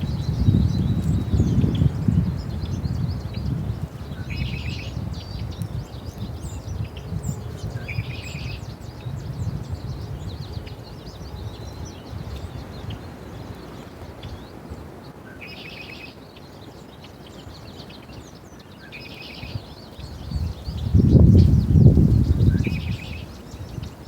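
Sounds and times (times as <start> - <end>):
buzzy bird calls: 0.0 - 24.0
small birds chirping: 0.0 - 24.0.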